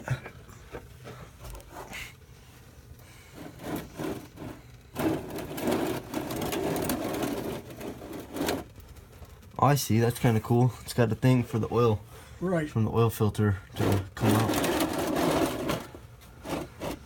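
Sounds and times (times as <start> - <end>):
oil filter scraping and knocking: 3.0 - 9.5, 13.8 - 17.0
rough scraping and rattling: 3.0 - 11.8, 13.7 - 17.0.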